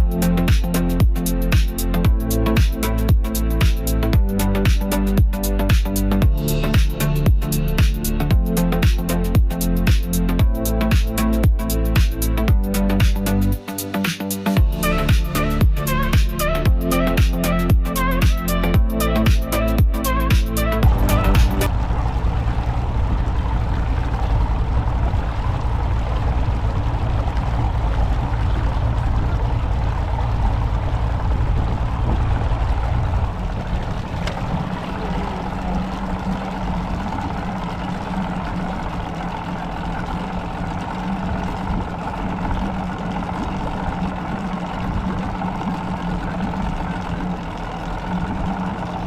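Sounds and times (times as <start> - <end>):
motorboat engine running: 0.0 - 49.0
water noise: 0.0 - 49.0
wind: 16.3 - 49.0.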